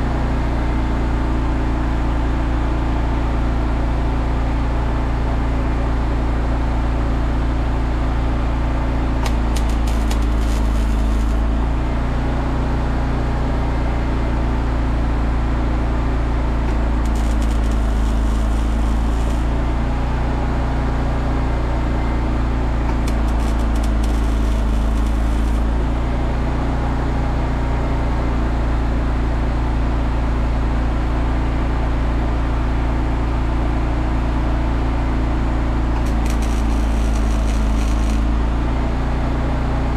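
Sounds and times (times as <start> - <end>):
low machine drone: 4.5 - 29.4, 35.3 - 39.9
welding crackle: 9.2 - 12.1, 16.6 - 20.1, 22.9 - 26.2, 36.0 - 38.6.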